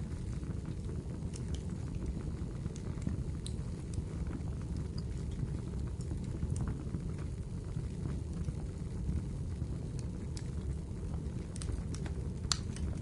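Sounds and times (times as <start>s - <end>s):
fire burning rumble: 0.0s - 13.0s
firewood pops and snaps: 11.5s - 12.9s.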